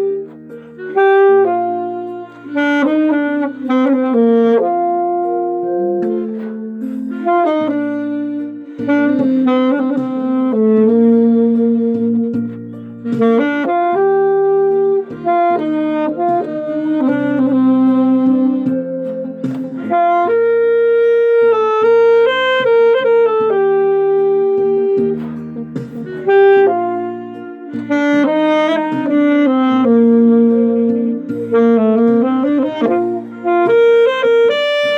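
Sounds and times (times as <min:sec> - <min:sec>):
alto saxophone melody: 0:00.0 - 0:34.9
backing track chords: 0:00.0 - 0:34.9.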